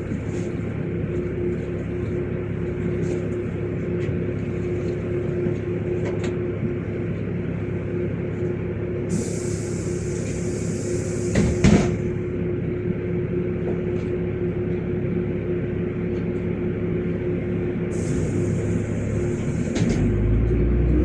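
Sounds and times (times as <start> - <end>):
bus engine droning: 0.0 - 21.0.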